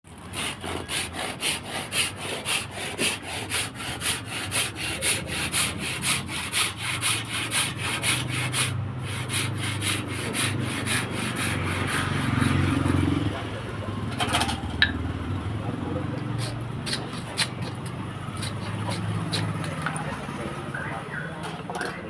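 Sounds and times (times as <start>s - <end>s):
hand tool rasping: 0.1s - 13.1s, 16.4s - 20.1s.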